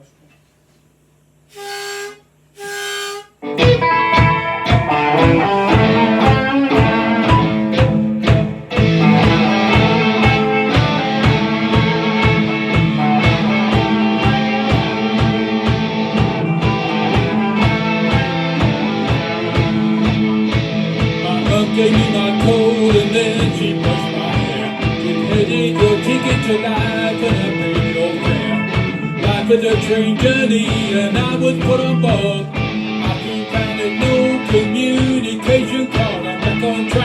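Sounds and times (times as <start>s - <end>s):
harmonica blasts: 1.4s - 29.6s
drums: 1.5s - 37.0s
rhythm guitars: 3.0s - 37.0s.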